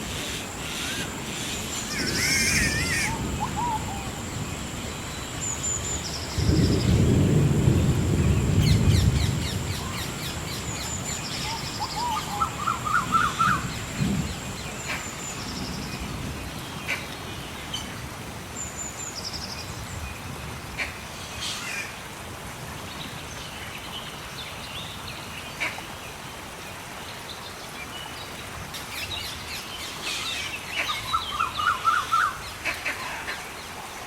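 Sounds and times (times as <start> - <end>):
gentle rain falling: 0.0 - 34.0
birds singing: 0.3 - 7.2, 8.2 - 22.0, 27.0 - 33.7.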